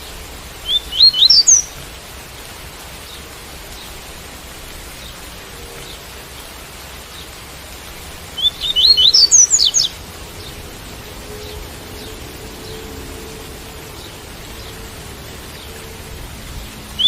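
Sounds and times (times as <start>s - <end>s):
rain hiss: 0.0s - 17.0s
seedeater singing rising notes: 8.6s - 17.0s.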